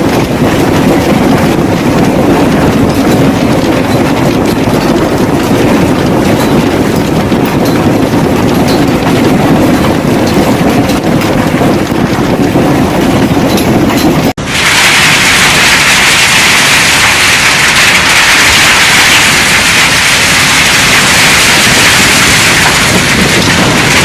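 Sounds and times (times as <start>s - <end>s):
hail clattering on hard surfaces: 14.4s - 24.0s
hissing hail downpour: 14.4s - 24.0s.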